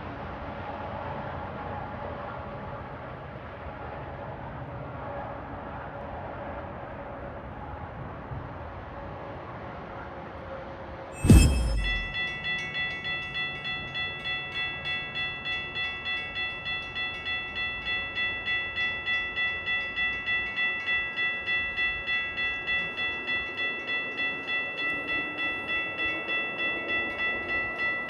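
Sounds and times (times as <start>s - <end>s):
railroad crossing bell ringing: 11.2s - 28.0s.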